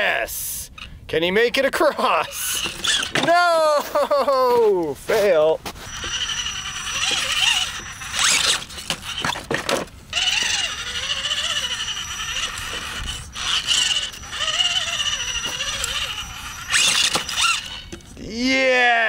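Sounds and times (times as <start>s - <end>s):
electric motor whining: 2.3s - 3.3s, 5.8s - 18.3s
tires scraping on stone: 2.3s - 3.4s, 5.0s - 18.2s.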